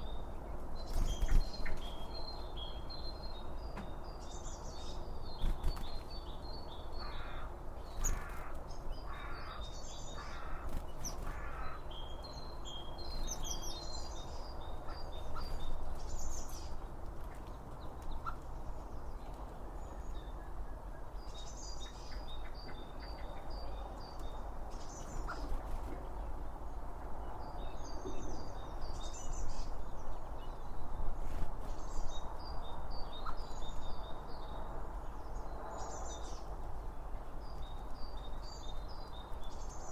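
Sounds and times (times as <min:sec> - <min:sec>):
small birds chirping: 0:00.0 - 0:26.4
crow cawing: 0:07.0 - 0:07.5, 0:09.1 - 0:09.6, 0:10.2 - 0:10.7, 0:11.3 - 0:11.8.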